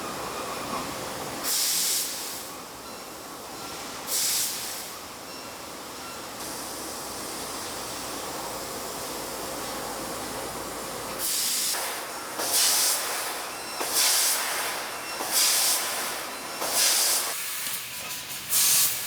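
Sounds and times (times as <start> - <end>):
steady machine hiss: 0.0 - 19.0
loud bursts of gas hiss: 1.4 - 2.5, 4.1 - 4.9, 11.2 - 19.0.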